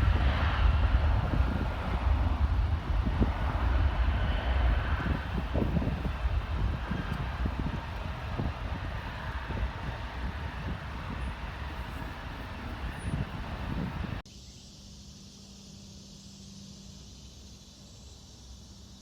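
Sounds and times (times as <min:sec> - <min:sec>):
jet engine roar: 0:00.0 - 0:14.2
wind buffeting microphone: 0:00.0 - 0:14.2
steady hum and hiss: 0:14.2 - 0:19.0.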